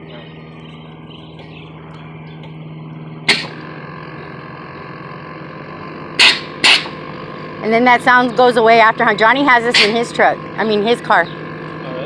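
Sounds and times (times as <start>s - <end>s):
air compressor humming: 0.0s - 12.0s
sharp air hisses from valves: 6.2s - 7.0s.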